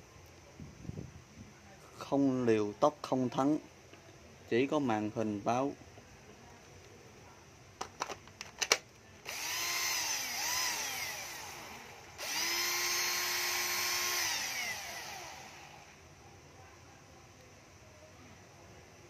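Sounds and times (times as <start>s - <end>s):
drill clicks: 8.6s - 16.0s
drill motor whining: 9.2s - 16.0s.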